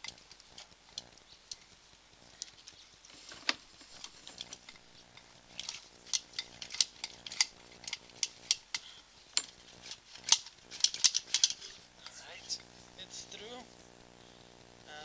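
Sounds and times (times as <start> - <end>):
faint steady hum: 0.0 - 15.0
camera cable clicking in pipe: 5.5 - 8.8.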